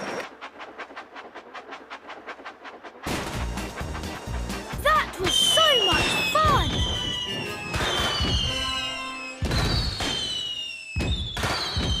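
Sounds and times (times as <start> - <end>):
firework bursts: 0.0 - 12.0
music: 3.1 - 9.5
high falling whistle: 5.2 - 12.0.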